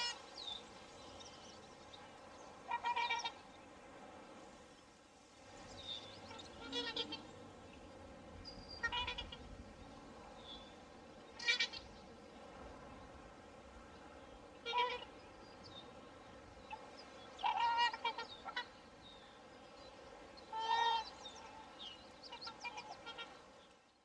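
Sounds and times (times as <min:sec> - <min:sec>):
swans honking: 0:00.0 - 0:00.3, 0:02.5 - 0:03.5, 0:06.2 - 0:07.6, 0:08.8 - 0:09.6, 0:11.3 - 0:12.0, 0:14.5 - 0:15.4, 0:16.7 - 0:19.0, 0:20.4 - 0:23.6
steady background hiss: 0:00.0 - 0:24.0.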